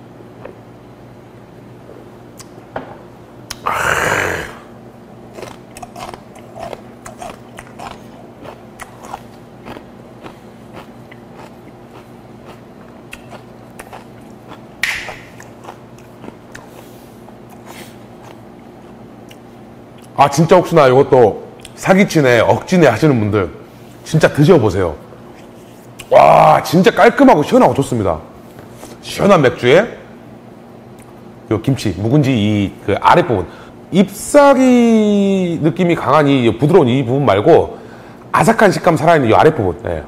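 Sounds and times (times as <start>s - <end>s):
man chewing crunchy food: 5.3s - 20.2s
breathy exhale: 37.8s - 38.3s.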